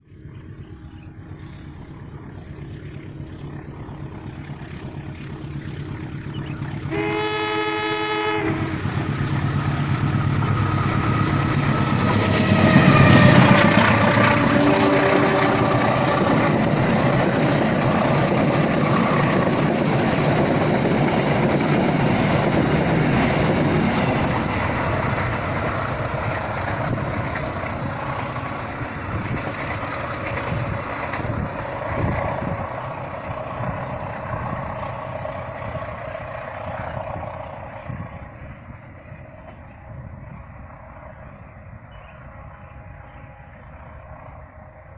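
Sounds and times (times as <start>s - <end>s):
passenger train passing: 0.0s - 44.9s
train horn blast: 6.9s - 9.0s, 12.4s - 16.0s.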